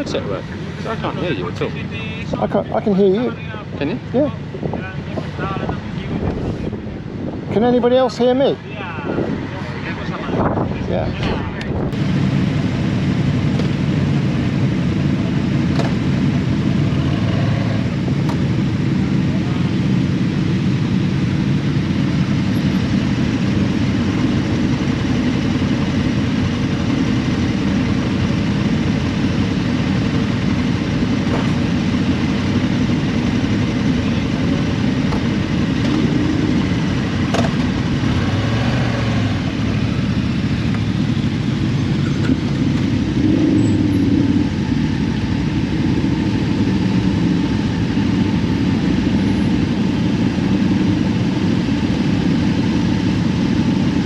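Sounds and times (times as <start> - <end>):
wind noise: 3.6 - 7.9, 8.5 - 12.6
motorcycle engine: 11.4 - 54.0.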